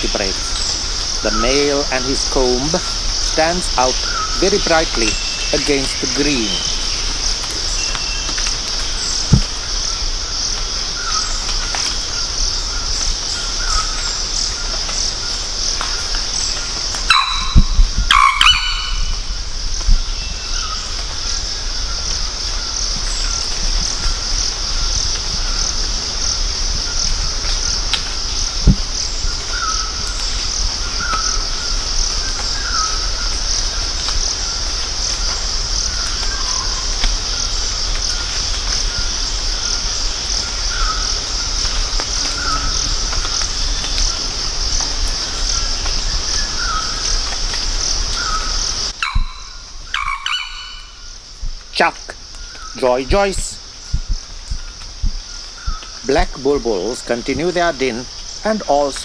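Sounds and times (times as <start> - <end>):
insects droning: 0.0 - 59.0
bird call: 17.1 - 19.3, 48.2 - 51.1.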